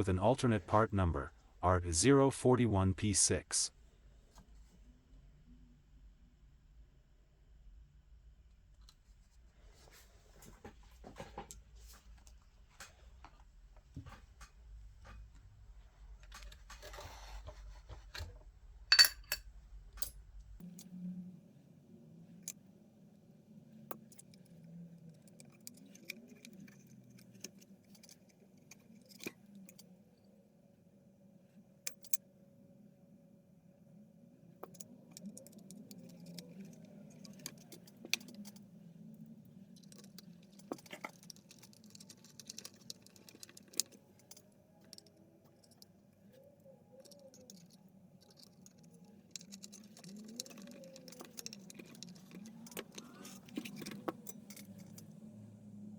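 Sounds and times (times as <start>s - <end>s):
low steady hum: 0.0s - 55.9s
metal tools clinking: 18.9s - 19.4s, 34.6s - 38.7s, 39.7s - 55.1s.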